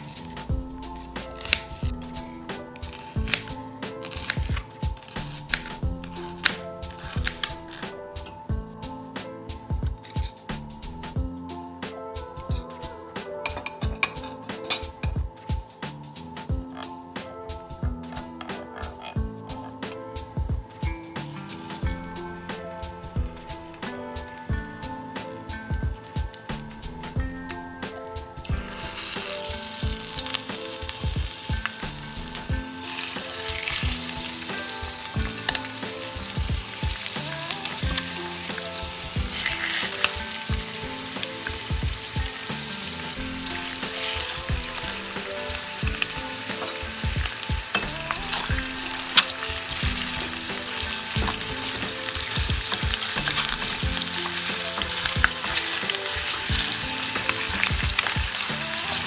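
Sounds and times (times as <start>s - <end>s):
chicken sizzling in hot oil: 0.0s - 8.3s, 20.8s - 27.2s, 28.2s - 59.0s.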